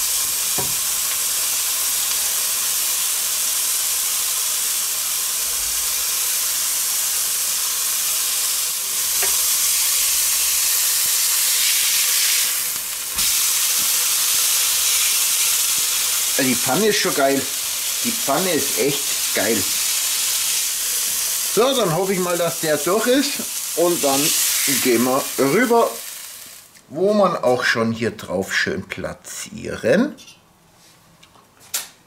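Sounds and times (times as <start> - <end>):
burger sizzling in a pan: 0.0 - 26.8.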